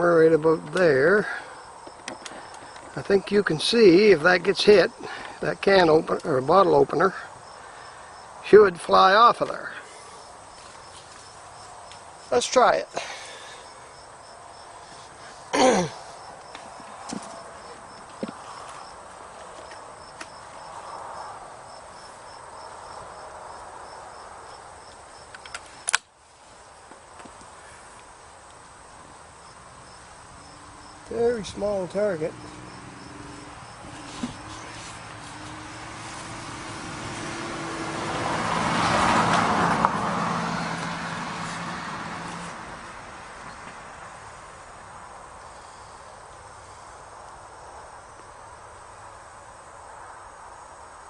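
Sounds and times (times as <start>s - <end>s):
vehicle passing by: 0.0s - 25.1s, 29.6s - 49.2s
crickets chirping: 0.0s - 51.0s
small clicks: 25.3s - 26.1s.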